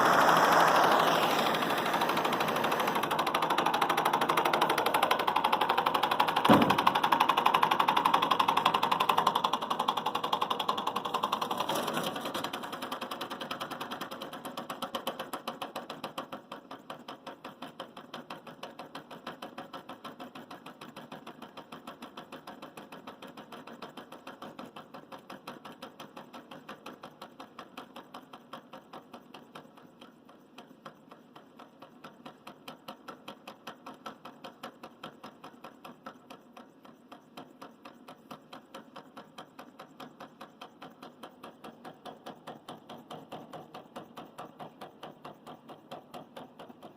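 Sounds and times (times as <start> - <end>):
small engine clicking: 0.0 - 46.9.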